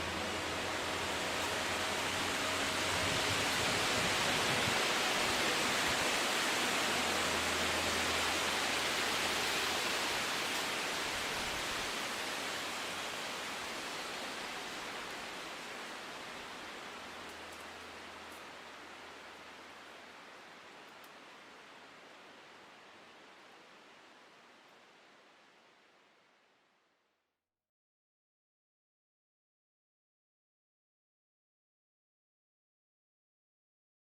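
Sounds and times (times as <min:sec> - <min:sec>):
wind blowing through trees: 0:00.0 - 0:26.5.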